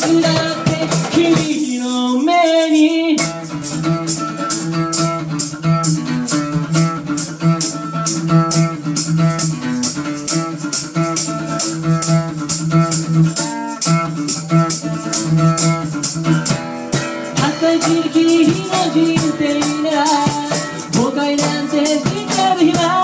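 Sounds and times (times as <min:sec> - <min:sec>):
rock band instrumental: 0:09.0 - 0:23.0.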